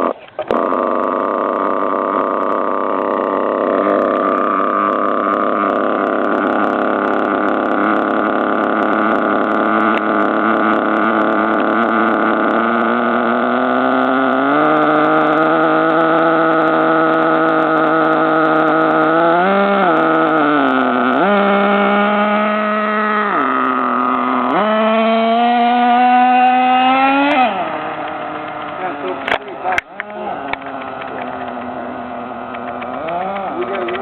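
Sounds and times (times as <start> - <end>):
nitro engine running: 0.0 - 34.0.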